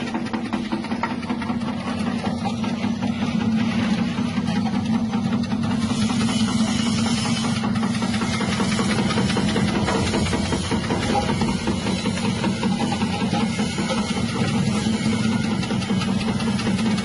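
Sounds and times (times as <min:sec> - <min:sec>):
slicing machine humming and rattling: 0:00.0 - 0:17.0.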